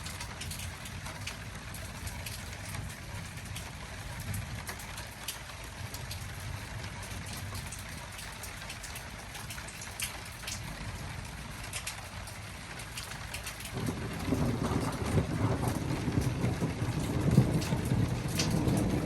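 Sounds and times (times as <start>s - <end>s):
rain hissing: 10.6s - 19.0s.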